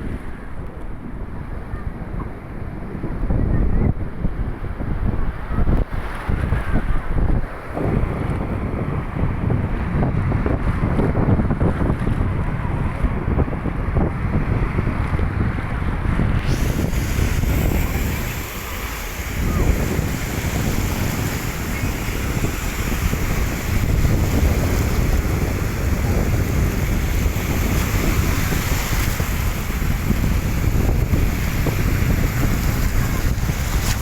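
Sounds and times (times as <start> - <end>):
wind buffeting microphone: 0.0 - 34.0
waves washing: 5.4 - 34.0.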